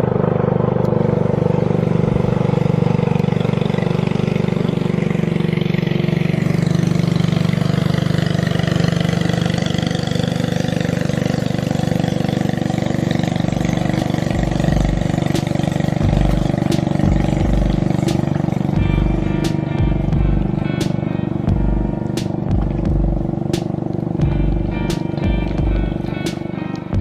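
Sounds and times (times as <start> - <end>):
motor engine running: 0.0 - 27.0
low rumbles: 12.3 - 27.0.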